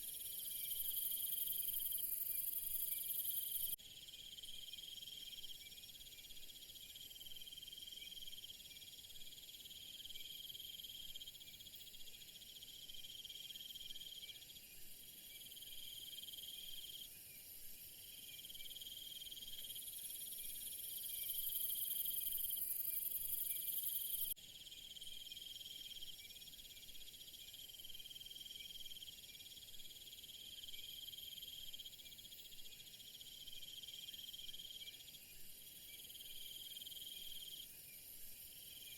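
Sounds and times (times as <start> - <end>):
pulsing insect trill: 0.0 - 6.3, 17.7 - 38.9.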